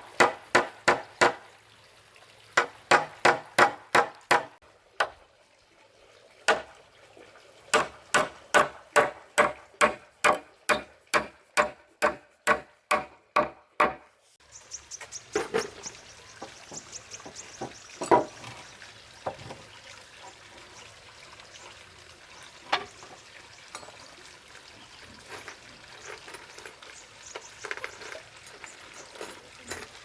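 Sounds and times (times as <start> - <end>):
hand tool striking wood: 0.0 - 1.4, 2.6 - 4.6, 7.7 - 14.1.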